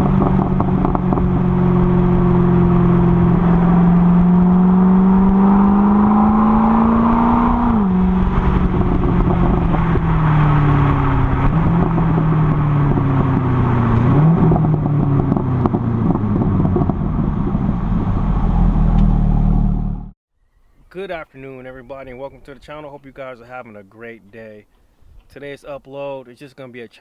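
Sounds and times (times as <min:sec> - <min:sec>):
car engine accelerating hard: 0:00.0 - 0:20.2.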